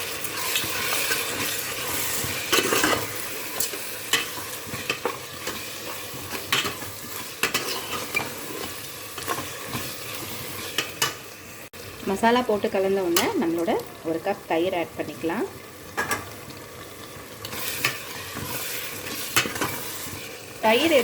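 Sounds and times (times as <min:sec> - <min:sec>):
masala sizzling in oil: 0:00.0 - 0:21.0
spoon scraping pot: 0:00.4 - 0:11.2, 0:17.5 - 0:21.0.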